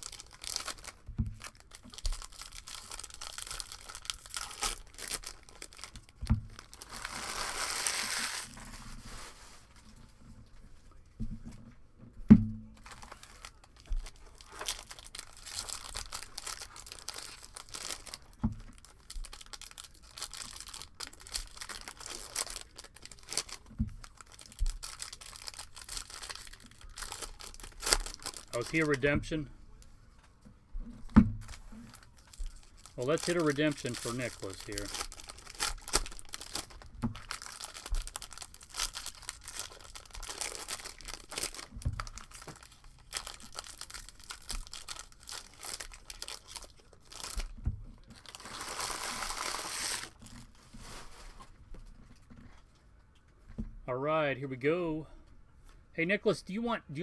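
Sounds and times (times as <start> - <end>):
wrappers crinkling and tearing: 0.0 - 10.0, 12.8 - 29.9, 31.4 - 51.6
cards shuffled: 6.8 - 9.4, 48.4 - 50.2.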